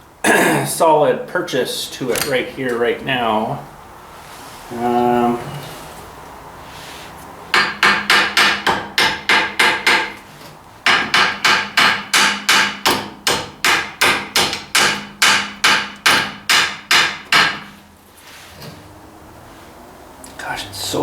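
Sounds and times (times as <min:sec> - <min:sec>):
hammer striking chisel on steel: 0:07.5 - 0:10.2, 0:10.8 - 0:17.8.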